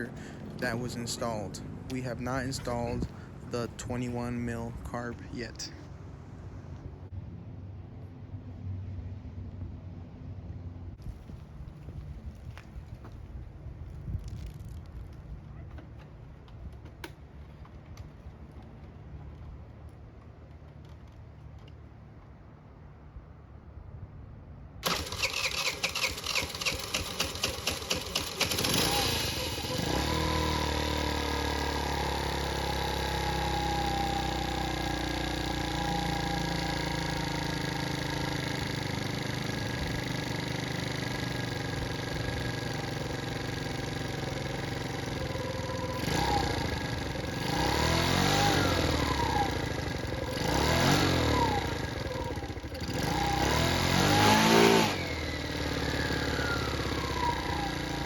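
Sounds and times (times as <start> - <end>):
scooter engine idling and revving: 0.0 - 5.1, 24.8 - 58.0
scooter engine cranking: 24.8 - 58.0.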